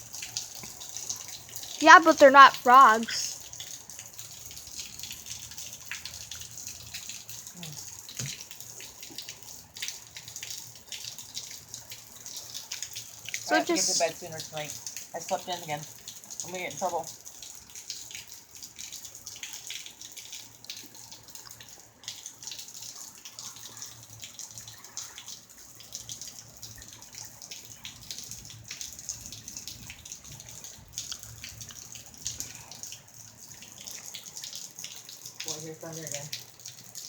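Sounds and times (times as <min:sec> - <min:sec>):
heavy rain falling: 0:00.0 - 0:03.3
close drips and splashes: 0:00.0 - 0:37.0.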